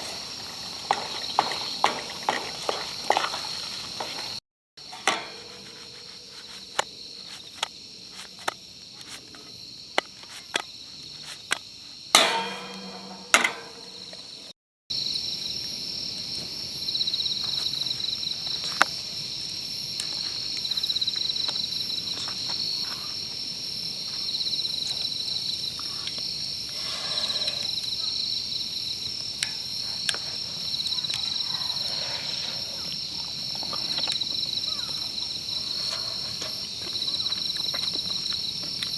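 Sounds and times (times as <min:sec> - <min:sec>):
insects chirping: 0:00.0 - 0:38.9
sharp clicks and knocks: 0:12.2 - 0:14.2.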